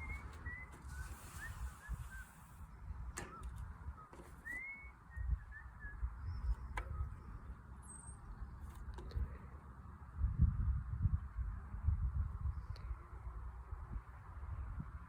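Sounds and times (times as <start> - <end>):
birds chirping and whistling: 0.0 - 8.6.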